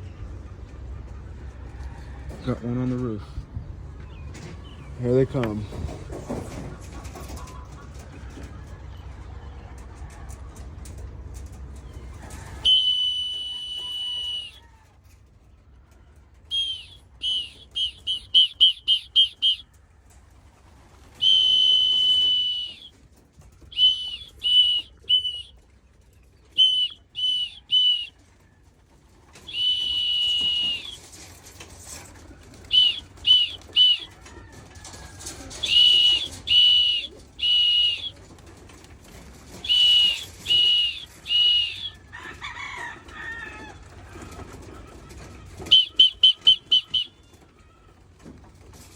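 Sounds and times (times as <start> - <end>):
whistle blasts and toots: 12.6 - 14.6, 16.5 - 19.6, 21.2 - 23.0, 23.7 - 25.5, 26.5 - 28.1, 29.4 - 31.0, 32.7 - 34.1, 35.6 - 38.1, 39.6 - 42.0, 45.7 - 47.2.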